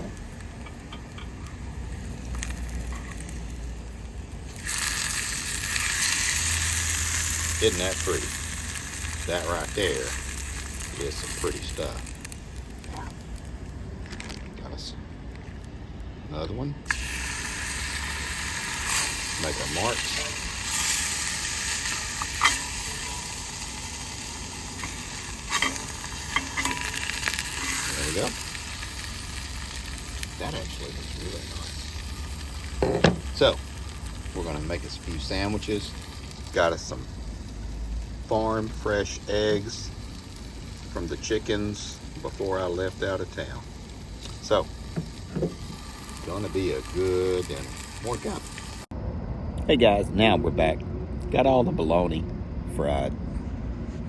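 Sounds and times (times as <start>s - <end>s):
meat sizzling in a frying pan: 0.1s - 13.8s, 16.9s - 48.9s
low rumble: 47.6s - 54.0s.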